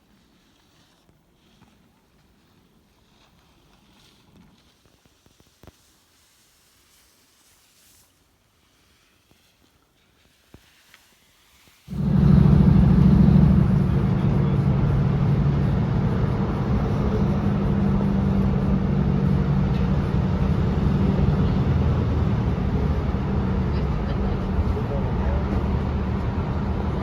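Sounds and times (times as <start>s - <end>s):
diesel train engine drone: 11.9s - 27.0s.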